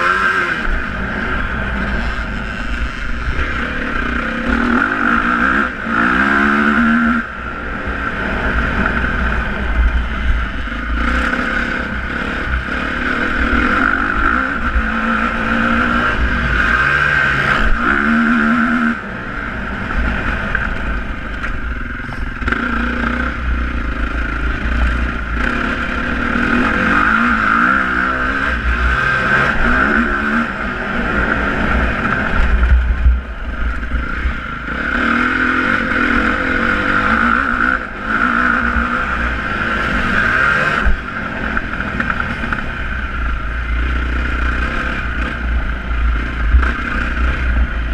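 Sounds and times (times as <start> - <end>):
motorcycle engines revving: 0.0 - 47.9
steady low rumble: 17.6 - 47.9.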